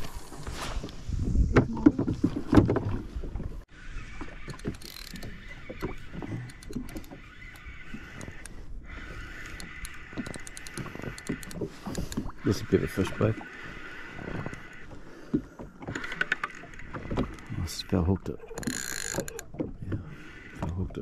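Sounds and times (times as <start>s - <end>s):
fishing reel whirring: 3.7s - 14.9s, 18.4s - 19.5s.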